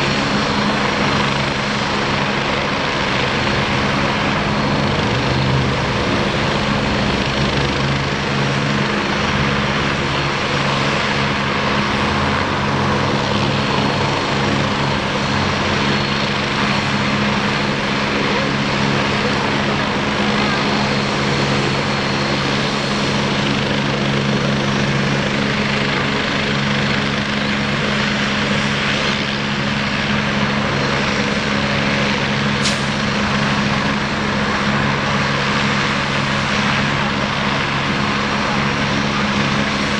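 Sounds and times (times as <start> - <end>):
helicopter turbine and rotors: 0.0 - 39.9.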